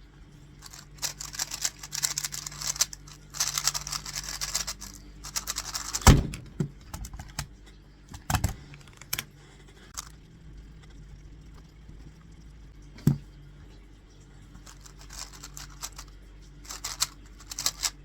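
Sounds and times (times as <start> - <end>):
plastic puzzle cube clicking: 0.6 - 6.1, 14.7 - 16.0, 16.7 - 18.0
loud thud: 6.0 - 6.5.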